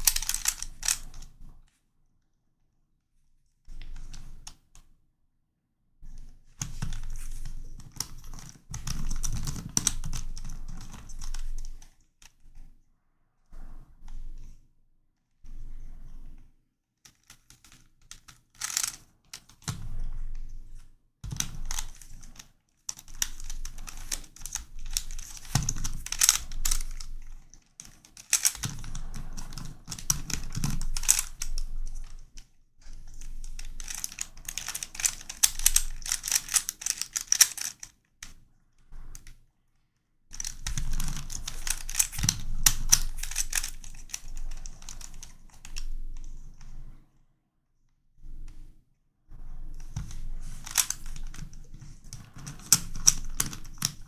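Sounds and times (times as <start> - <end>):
plastic puzzle clicking: 0.0 - 1.3, 18.2 - 19.7, 21.3 - 32.2, 33.1 - 37.9, 40.4 - 45.9, 49.9 - 54.0.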